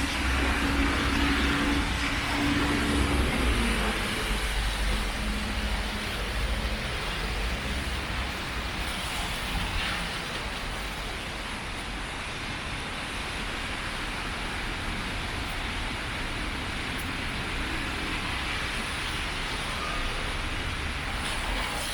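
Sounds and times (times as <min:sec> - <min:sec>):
engine hum: 0:00.0 - 0:10.6
steady rain: 0:00.0 - 0:21.9
vehicle traffic rumble: 0:00.0 - 0:21.9.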